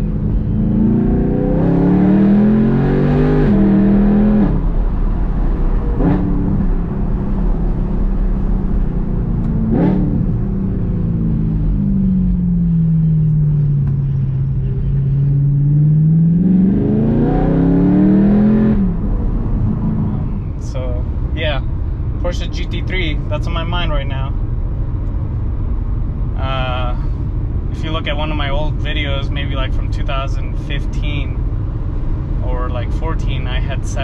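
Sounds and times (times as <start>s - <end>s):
car engine revving through loud exhaust: 0.0s - 13.0s, 15.2s - 20.3s.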